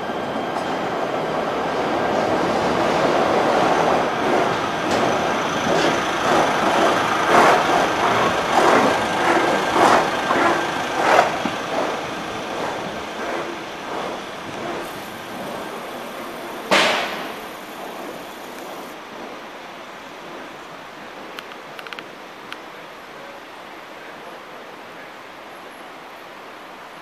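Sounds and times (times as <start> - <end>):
train rumble: 0.0 - 25.1
train wheels clacking over rail joints: 2.4 - 19.4.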